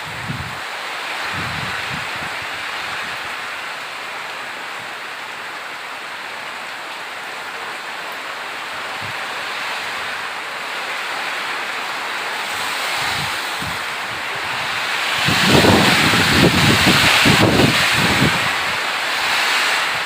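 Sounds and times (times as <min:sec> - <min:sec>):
wind rumble on microphone: 0:00.0 - 0:03.5, 0:08.8 - 0:10.2, 0:12.4 - 0:20.0
rain falling: 0:00.0 - 0:20.0.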